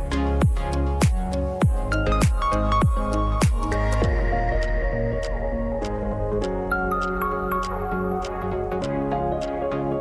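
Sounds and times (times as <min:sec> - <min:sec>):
soft ambient instrumental music: 0:00.0 - 0:10.0.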